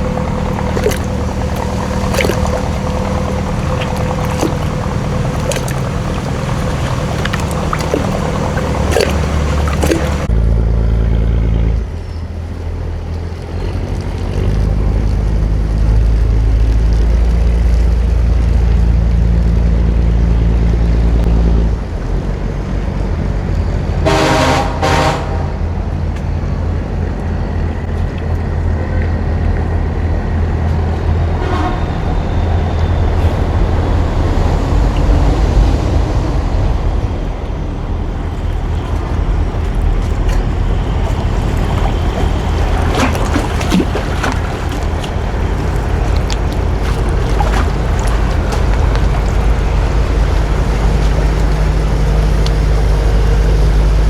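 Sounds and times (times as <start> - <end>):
boat engine droning: 0.0 - 54.0
horn toots: 24.0 - 25.7, 31.3 - 32.2.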